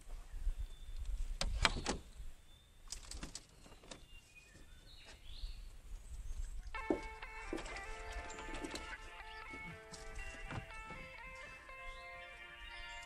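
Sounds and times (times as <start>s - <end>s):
birds chirping: 0.0s - 13.0s
sharp knocks and clicks: 6.8s - 9.0s.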